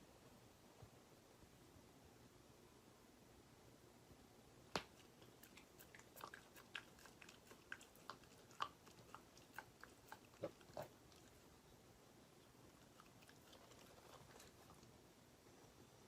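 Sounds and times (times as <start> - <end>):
pet chewing crunches: 12.7 - 14.9.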